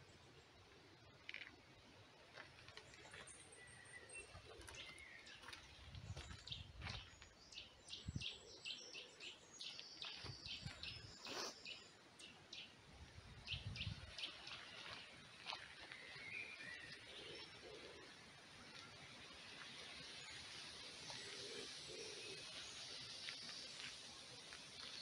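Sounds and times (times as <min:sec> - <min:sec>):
faint songbirds singing: 0:00.0 - 0:25.0.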